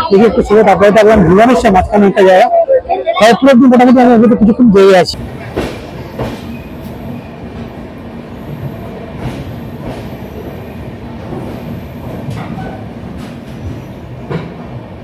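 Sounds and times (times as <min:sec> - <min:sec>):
train wheels rumbling on rails: 0:05.1 - 0:15.0
train wheels clacking: 0:05.4 - 0:07.8, 0:08.5 - 0:10.6.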